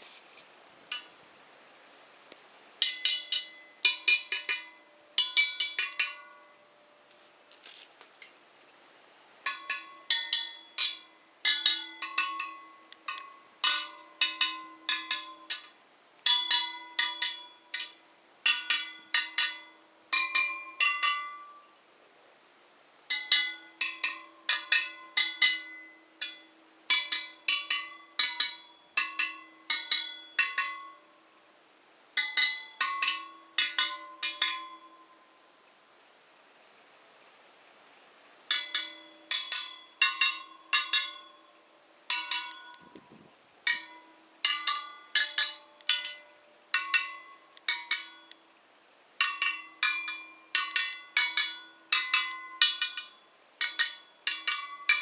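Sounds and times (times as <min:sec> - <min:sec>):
metal chimes ringing: 0:38.5 - 0:43.1, 0:43.7 - 0:48.4, 0:49.2 - 0:55.0.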